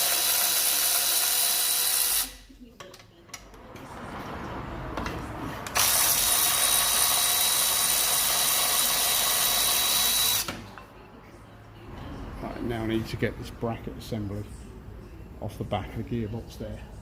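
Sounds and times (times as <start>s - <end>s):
handheld power tool running: 0.0s - 2.4s, 5.8s - 10.5s.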